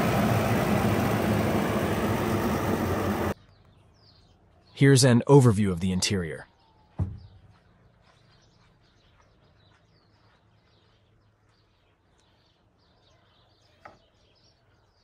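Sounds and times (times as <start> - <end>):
faint bird chirps: 6.2 - 15.0.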